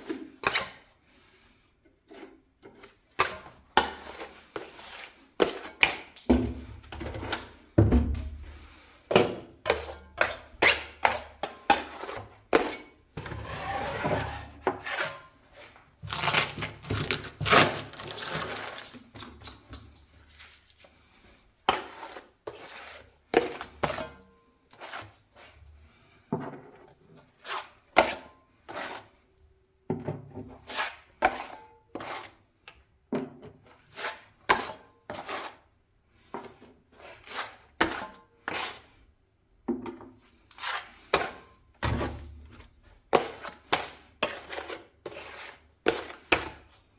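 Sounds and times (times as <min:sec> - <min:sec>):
scraping or rubbing: 0:13.2 - 0:18.9.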